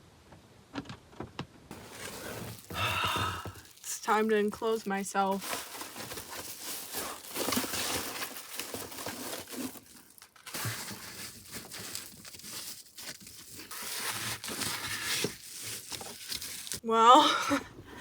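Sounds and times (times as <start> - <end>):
sheet material crinkling and rustling: 1.7 - 16.8.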